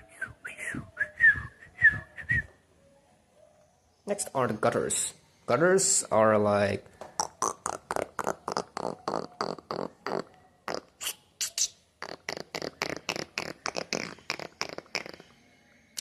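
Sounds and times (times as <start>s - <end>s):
person imitating bird calls: 7.1s - 15.4s.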